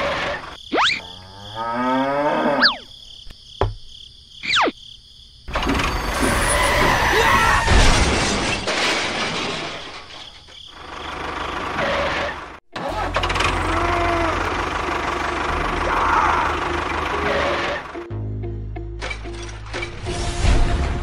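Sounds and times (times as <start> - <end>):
engine chugging: 10.8 - 18.1.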